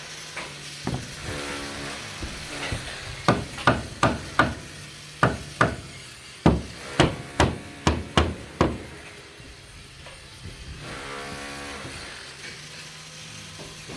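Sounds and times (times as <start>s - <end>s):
hammer striking: 0.9s - 1.5s, 2.2s - 9.1s.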